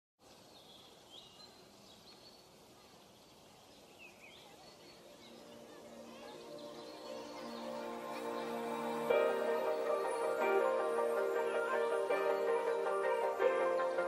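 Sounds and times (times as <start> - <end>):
soft outdoor hiss: 0.2 - 14.0
faint bird chirps: 0.4 - 14.0
soft ambient music: 4.8 - 14.0.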